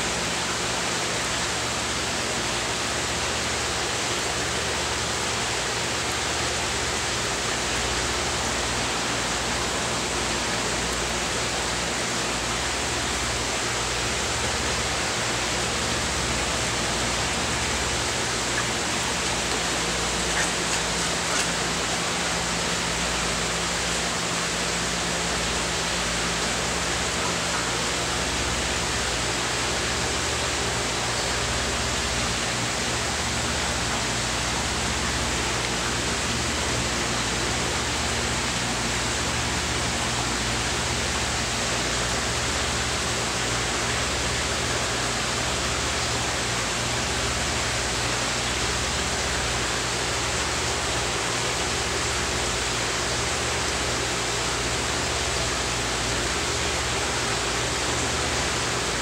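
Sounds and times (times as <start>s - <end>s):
steady hiss: 0.0s - 39.4s.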